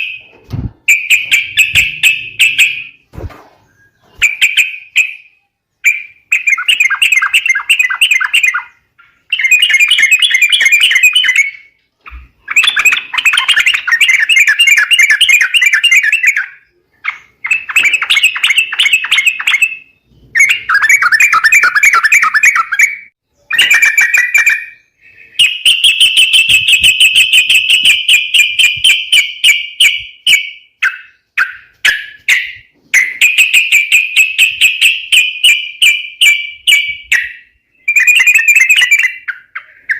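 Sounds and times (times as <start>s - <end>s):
bird chattering calls: 0.9s - 3.0s.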